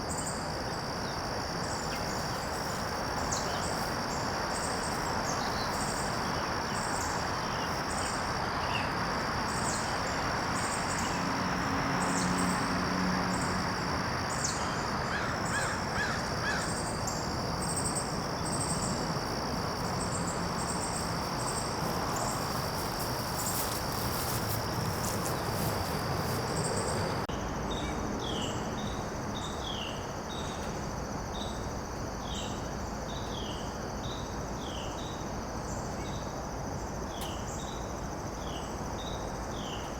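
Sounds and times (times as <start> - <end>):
insects chirring: 0.0 - 39.9
background hiss: 13.4 - 27.3.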